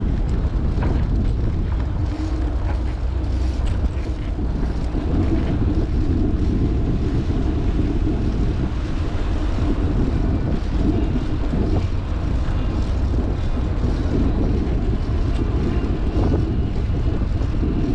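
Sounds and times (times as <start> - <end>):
bicycle rattles and clicks: 0.0 - 17.9
wind rushing over microphone: 0.0 - 17.9.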